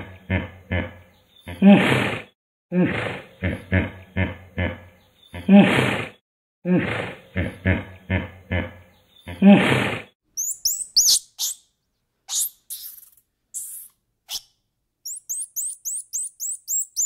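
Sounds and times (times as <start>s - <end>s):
hippopotamus grunts and honks: 0.0s - 10.2s
monkey high chirps: 10.4s - 11.7s, 12.3s - 17.0s.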